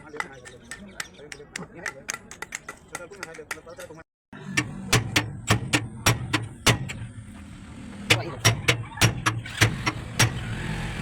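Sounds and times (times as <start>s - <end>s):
hammer striking metal: 4.4s - 7.1s, 8.1s - 10.4s.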